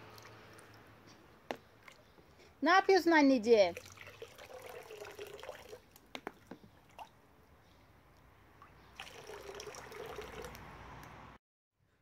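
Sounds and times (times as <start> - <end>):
faint water trickle: 0.0 - 0.8, 3.5 - 6.0, 6.7 - 7.2, 8.6 - 10.6.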